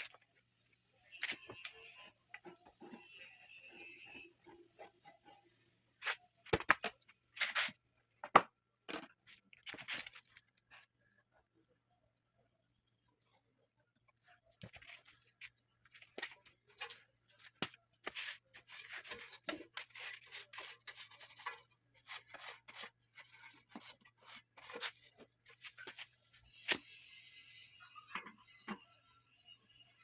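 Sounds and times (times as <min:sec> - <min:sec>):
plastic and metal parts handled: 0:06.0 - 0:10.9.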